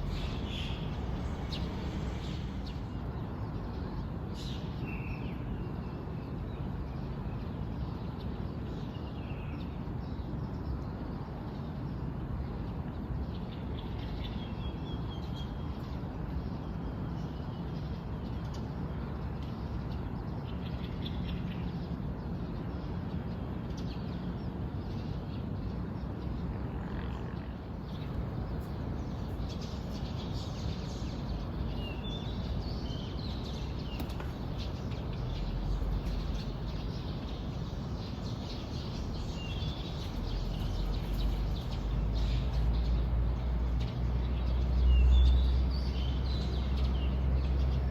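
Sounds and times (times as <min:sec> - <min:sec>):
birds chirping: 0:00.0 - 0:03.1, 0:27.8 - 0:47.9.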